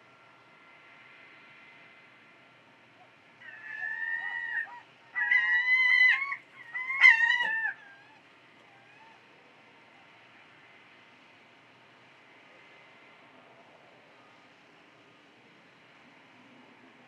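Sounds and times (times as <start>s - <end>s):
bird calling with wavering cries: 3.0s - 10.2s.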